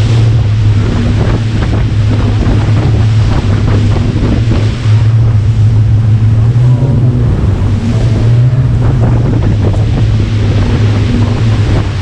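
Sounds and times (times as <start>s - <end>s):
motorboat engine droning: 0.0s - 12.0s
water rushing past hull: 0.0s - 12.0s
wind buffeting microphone: 0.0s - 12.0s.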